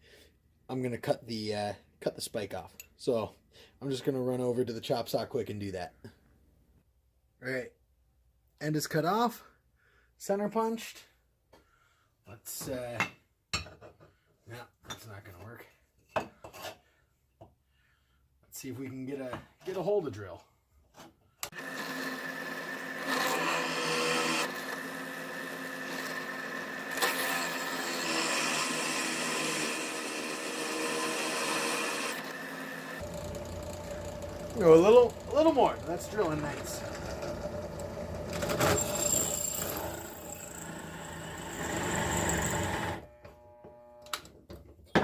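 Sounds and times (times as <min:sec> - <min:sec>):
electric drill drilling into steel: 0:21.6 - 0:43.4.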